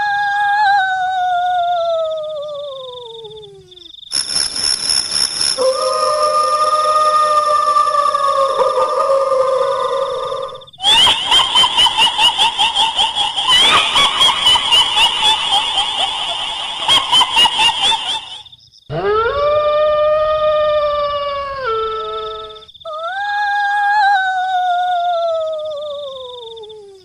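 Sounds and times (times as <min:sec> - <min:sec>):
high-pitched female wail: 0:00.0 - 0:03.4, 0:05.6 - 0:27.0
fast pulsing cackling laughter: 0:06.9 - 0:18.5.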